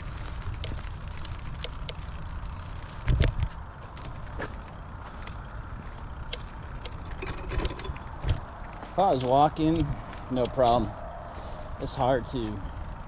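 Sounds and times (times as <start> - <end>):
bicycle bump: 0.0 - 11.8
bicycle clicks and rattles: 0.0 - 13.0
bicycle rumbling over rough path: 0.0 - 13.0.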